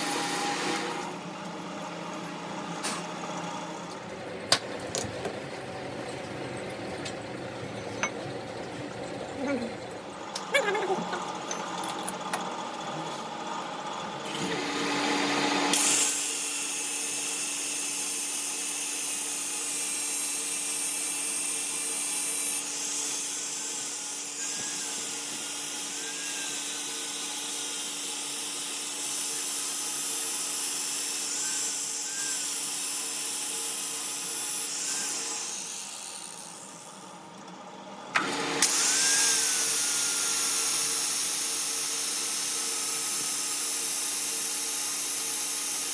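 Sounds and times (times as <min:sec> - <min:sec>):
power tool running: 0:00.0 - 0:03.9, 0:11.3 - 0:37.1, 0:38.1 - 0:45.9.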